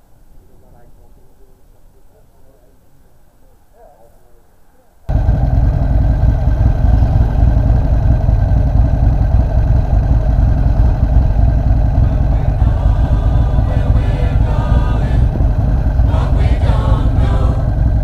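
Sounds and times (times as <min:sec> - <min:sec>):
motorcycle engine idling: 0:05.1 - 0:18.0.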